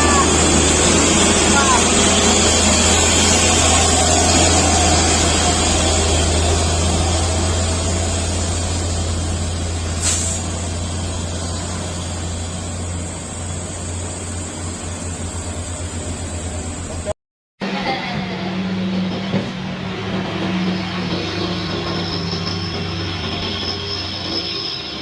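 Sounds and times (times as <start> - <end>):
heavy truck engine and road noise: 0.0 - 25.0
short sharp hiss: 10.0 - 10.6.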